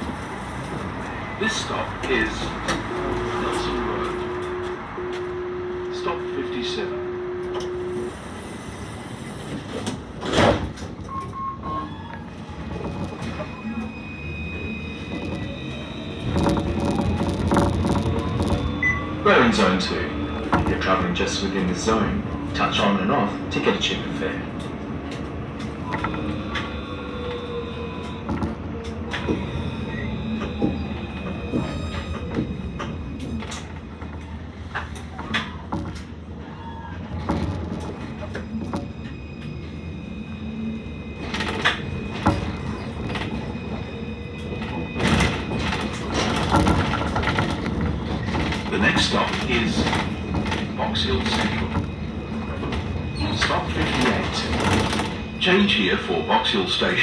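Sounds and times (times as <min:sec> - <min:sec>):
rail clicks and knocks: 0:00.0 - 0:05.4, 0:07.3 - 0:08.1, 0:09.2 - 0:13.9, 0:15.0 - 0:39.8, 0:41.2 - 0:57.0
steady tram hum: 0:00.0 - 0:57.0
tram doors rushing: 0:00.0 - 0:57.0.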